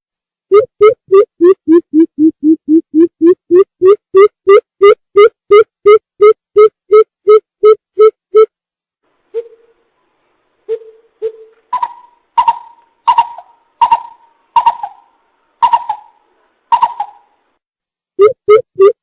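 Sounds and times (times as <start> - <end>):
bird hooting: 9.3 - 9.8, 10.7 - 17.3.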